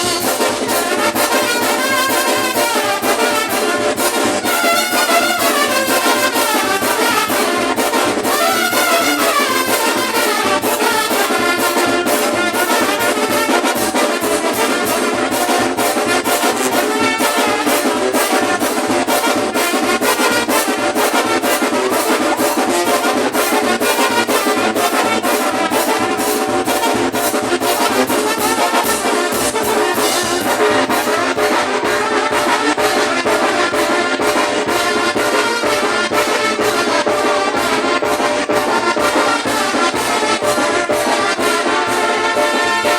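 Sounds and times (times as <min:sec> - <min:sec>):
brass band playing: 0:00.0 - 0:42.9
fast drumbeat: 0:00.0 - 0:42.9
trumpets carrying tune: 0:00.0 - 0:42.9.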